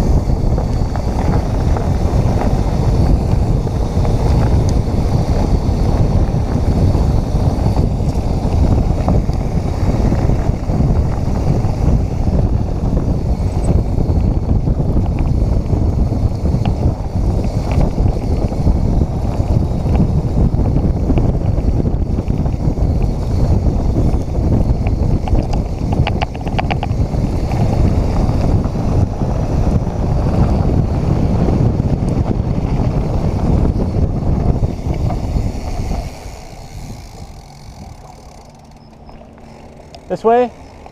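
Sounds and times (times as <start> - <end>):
bike rattling over rough ground: 0.0 - 40.9
wind on camera microphone: 0.0 - 40.9
rapid ticks: 12.4 - 20.2, 21.1 - 28.8, 33.6 - 40.9.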